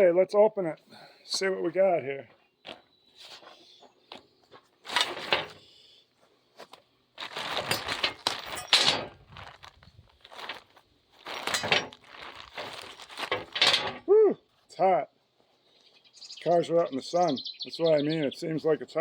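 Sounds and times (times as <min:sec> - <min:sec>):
packaging crinkling and tearing: 0:07.2 - 0:08.4, 0:09.1 - 0:13.3.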